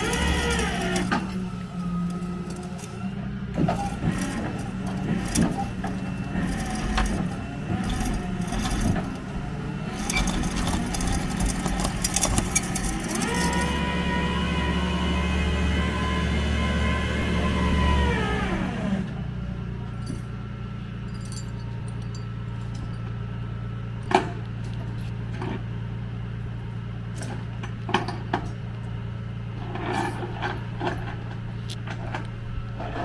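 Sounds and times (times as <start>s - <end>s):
vehicle engine running: 0.0s - 20.9s
metallic clanks and knocks: 3.6s - 13.8s.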